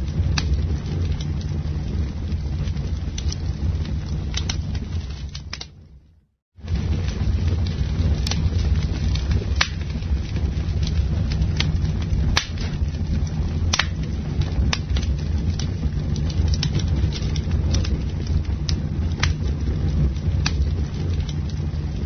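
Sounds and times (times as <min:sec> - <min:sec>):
fire crackling: 0:00.0 - 0:22.0
flames rushing: 0:00.0 - 0:22.0
loud wood pops: 0:05.2 - 0:05.8, 0:09.6 - 0:09.9, 0:12.3 - 0:12.8, 0:13.7 - 0:14.1.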